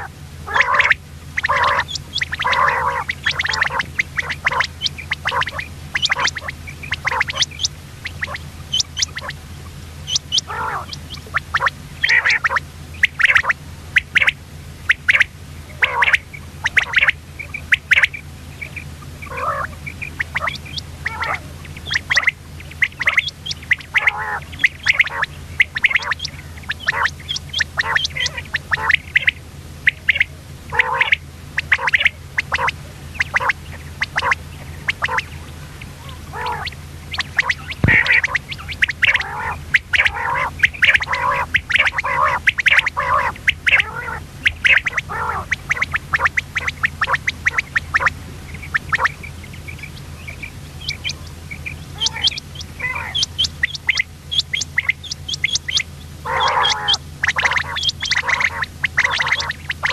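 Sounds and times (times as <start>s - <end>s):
quail calling: 0.0s - 59.9s
steady low hum: 0.0s - 59.9s.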